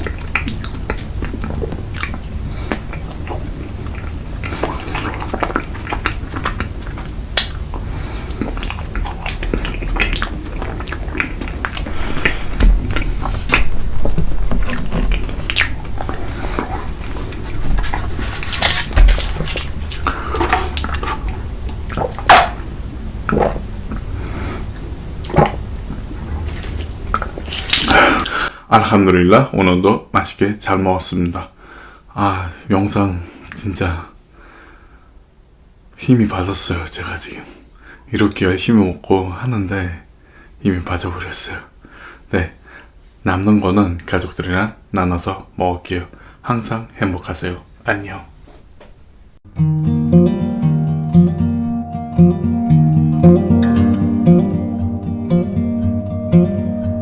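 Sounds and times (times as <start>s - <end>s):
chewing: 0.0s - 22.7s, 23.3s - 28.5s.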